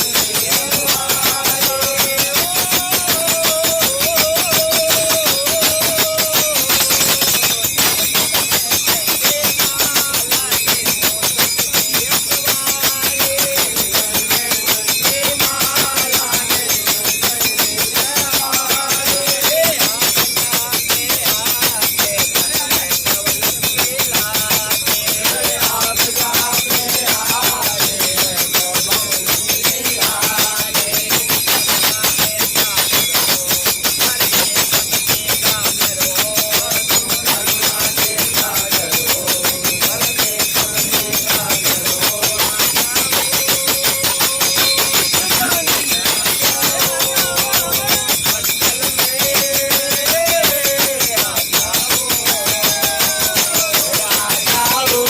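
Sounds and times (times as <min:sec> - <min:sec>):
sharp percussive beat: 0:00.0 - 0:55.0
voices singing: 0:00.0 - 0:55.0.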